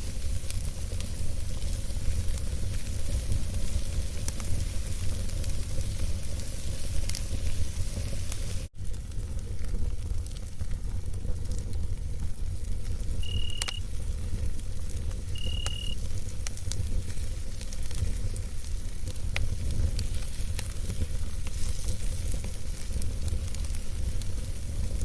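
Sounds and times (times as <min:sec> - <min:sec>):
campfire crackling and popping: 0:00.0 - 0:25.0
fire rumble and hiss: 0:00.0 - 0:25.0
cricket chirps: 0:13.2 - 0:13.8, 0:15.3 - 0:16.0.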